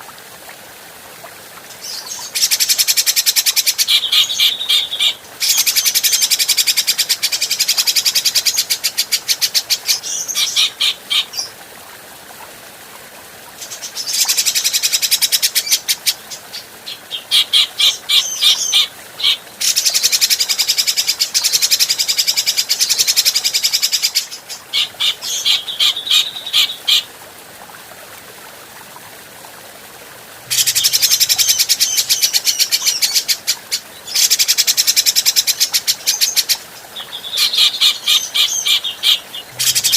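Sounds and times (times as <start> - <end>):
bird fast chattering song: 1.8 - 11.5, 16.5 - 27.0, 34.1 - 39.9.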